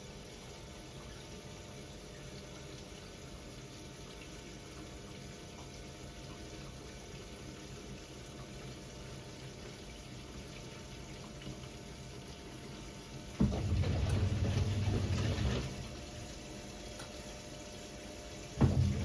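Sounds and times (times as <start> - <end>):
washing machine hum: 0.0 - 19.0
drum turning with water sloshing: 12.4 - 19.0.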